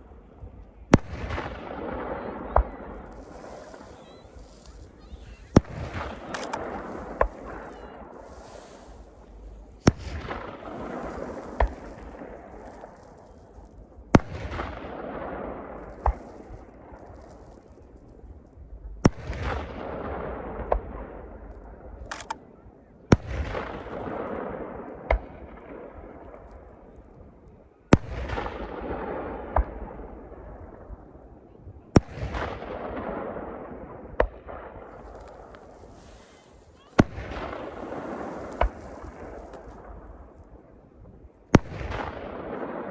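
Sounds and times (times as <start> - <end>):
small firework pops: 0.6 - 9.2, 9.8 - 15.0, 15.8 - 18.2, 25.1 - 28.7, 34.2 - 40.5, 41.5 - 42.4
firework shells bursting: 6.0 - 7.6.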